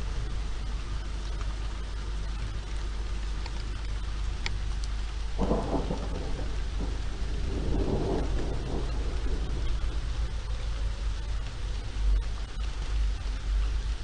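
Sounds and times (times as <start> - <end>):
steady rain: 0.0 - 14.0
thunder: 5.4 - 11.6.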